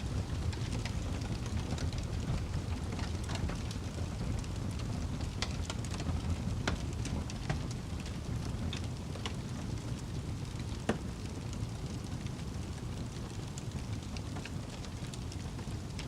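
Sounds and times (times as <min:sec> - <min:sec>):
fire crackling and popping: 0:00.0 - 0:16.0
low rumble of fire: 0:00.0 - 0:16.0.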